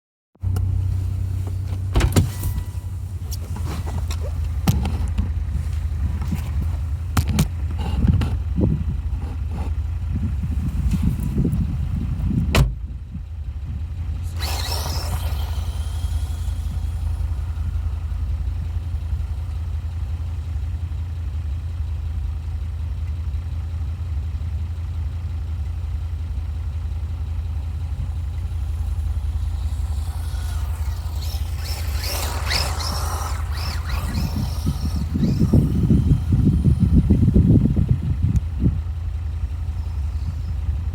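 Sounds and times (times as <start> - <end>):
steady low rumble: 0.4 - 40.9
electric motor whining: 0.5 - 12.0, 14.1 - 20.6, 27.6 - 40.9.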